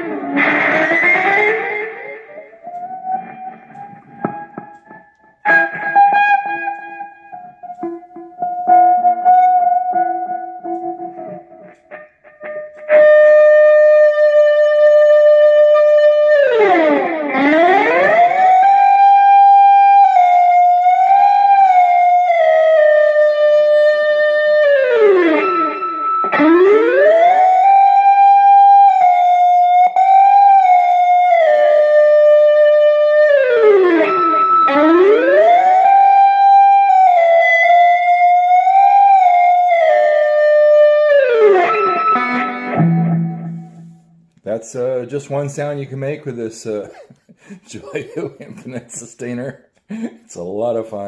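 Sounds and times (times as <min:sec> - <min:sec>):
electric guitar plucked notes: 0:00.0 - 0:44.5
electric guitar sustained note: 0:32.2 - 0:44.2.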